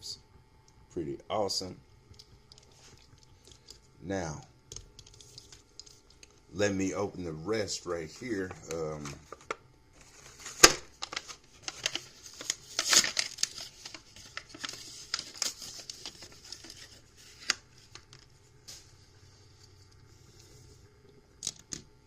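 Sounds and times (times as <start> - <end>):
packaging crinkling and tearing: 8.2 - 18.3.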